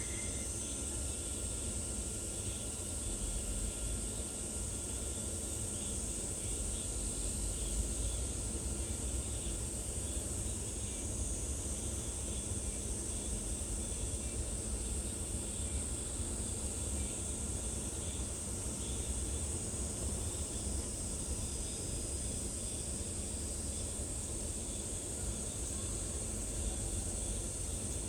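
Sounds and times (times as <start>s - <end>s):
faint chirps: 0.0s - 0.8s
high-pitched insect drone: 0.0s - 1.1s.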